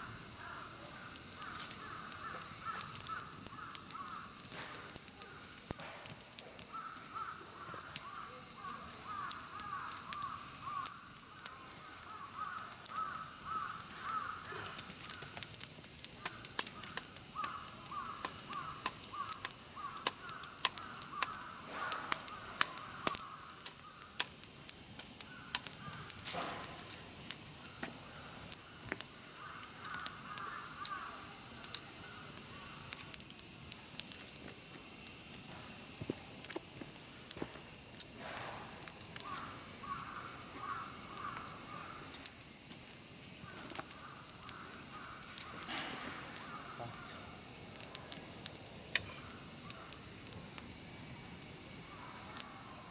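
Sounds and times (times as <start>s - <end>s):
campfire crackling: 0.0s - 52.9s
insects chorus: 0.0s - 52.9s.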